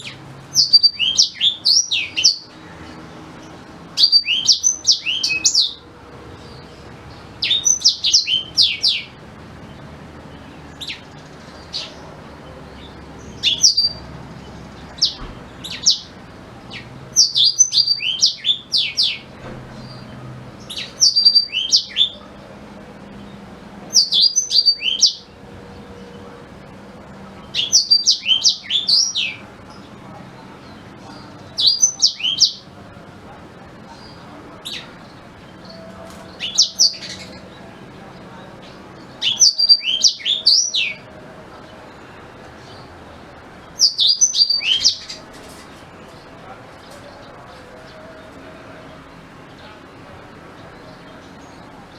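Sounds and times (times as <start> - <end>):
canary singing: 0.0 - 51.9.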